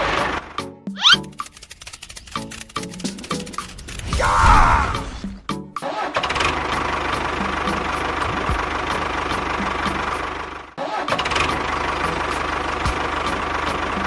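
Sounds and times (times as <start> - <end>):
tractor engine starting and idling: 0.0 - 0.6, 5.0 - 14.0.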